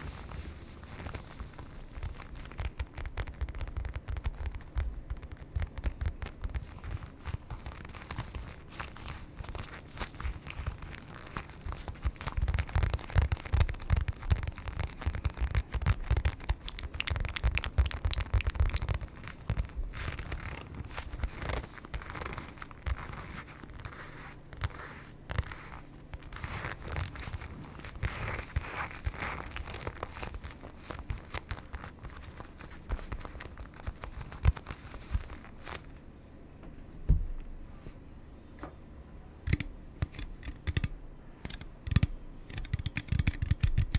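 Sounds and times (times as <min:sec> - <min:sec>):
crinkling and scratching: 0:00.0 - 0:36.1, 0:39.5 - 0:43.9.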